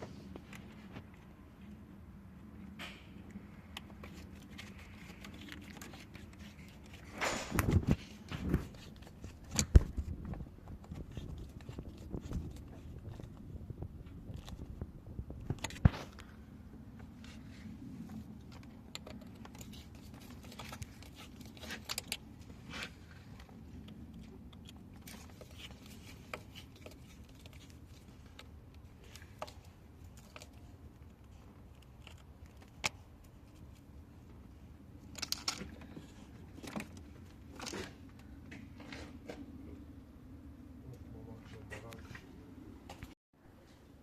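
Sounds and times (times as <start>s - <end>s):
tools and small parts clinking: 18.1s - 33.8s, 35.0s - 38.2s.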